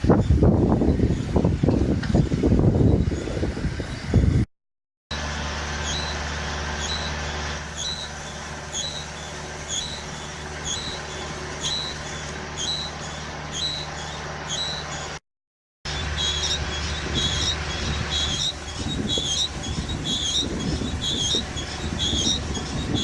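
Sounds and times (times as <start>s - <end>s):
diesel engine running: 5.1s - 15.2s, 15.9s - 23.0s
short high squeak: 5.2s - 15.2s, 15.9s - 23.0s.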